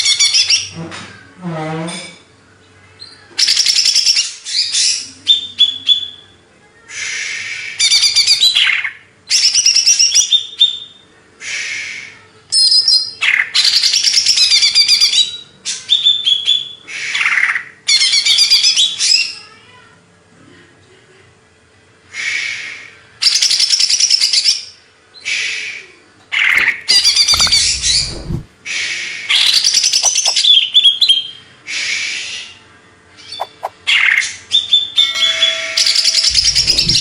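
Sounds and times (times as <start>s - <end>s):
bird singing rapid trills: 29.8s - 30.5s.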